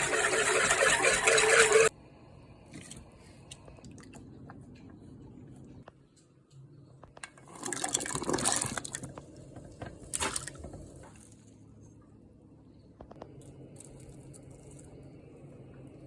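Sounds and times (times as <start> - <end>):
soup sloshing and splashing: 7.5 - 9.1, 10.1 - 11.4.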